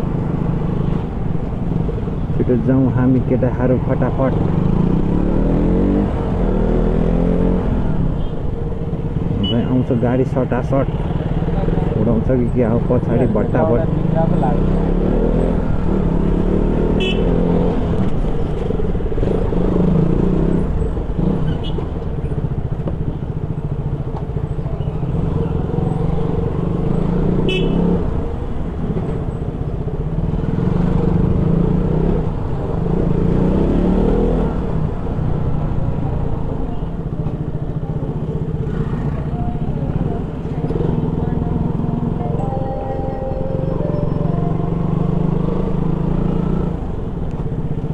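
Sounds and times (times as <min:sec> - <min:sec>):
motorcycle engine revving: 0:04.3 - 0:08.1, 0:13.0 - 0:23.2, 0:24.4 - 0:29.2, 0:30.1 - 0:36.4, 0:37.6 - 0:47.9
horn toots: 0:16.9 - 0:17.5, 0:27.4 - 0:28.0.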